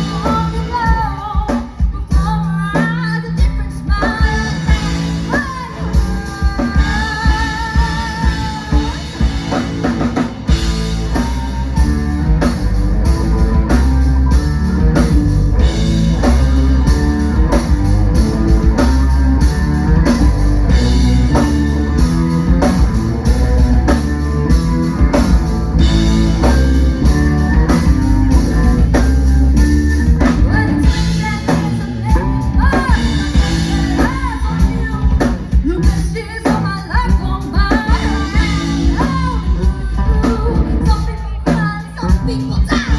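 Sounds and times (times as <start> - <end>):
person singing: 0.0 - 14.3, 30.2 - 42.9
bass guitar: 0.0 - 42.9
drum kit beat: 0.0 - 42.9
electric guitar: 0.0 - 42.9.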